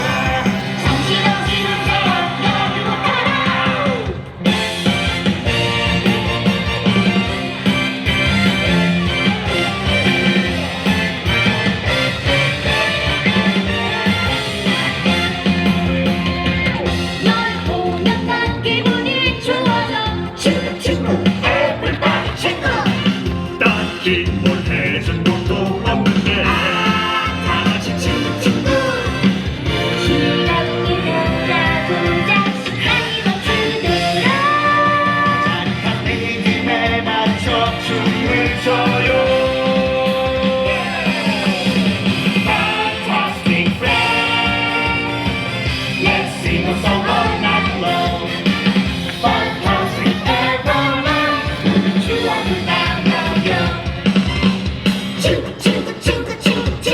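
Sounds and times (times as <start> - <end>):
person singing: 0.0 - 4.3, 17.1 - 45.3, 46.0 - 54.0, 55.2 - 56.9
band backing track: 0.0 - 56.9
pop-rock song: 0.0 - 56.9.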